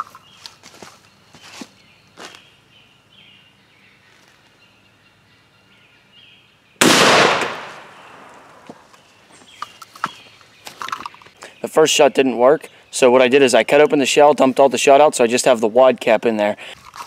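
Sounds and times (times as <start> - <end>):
faint birdsong: 0.0 - 16.8
shotgun blast: 6.8 - 8.6.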